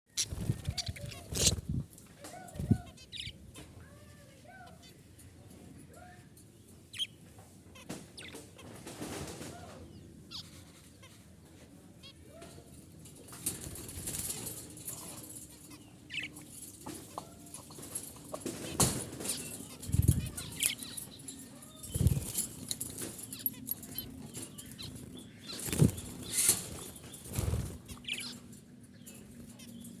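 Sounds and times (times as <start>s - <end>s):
wing flapping: 0.2s - 1.9s, 13.3s - 28.5s.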